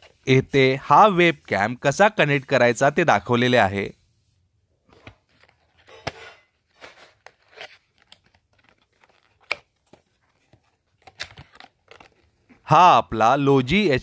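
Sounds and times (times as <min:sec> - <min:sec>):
cardboard packaging rustling: 0:04.9 - 0:12.6.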